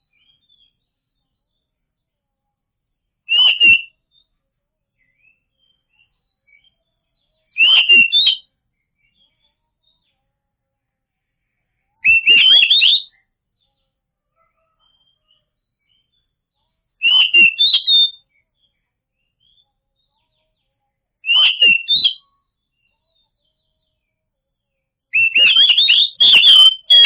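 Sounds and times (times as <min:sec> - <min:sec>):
bird whistling warbling song: 0:03.3 - 0:04.0, 0:07.6 - 0:08.5, 0:12.0 - 0:13.2, 0:17.0 - 0:18.2, 0:21.2 - 0:22.2, 0:25.2 - 0:27.0.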